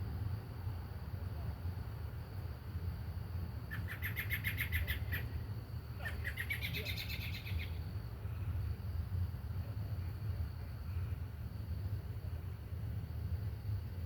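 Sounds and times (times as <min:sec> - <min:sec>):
steady low hum: 0:00.0 - 0:14.0
nestlings begging chirps: 0:03.7 - 0:05.3, 0:06.0 - 0:07.8.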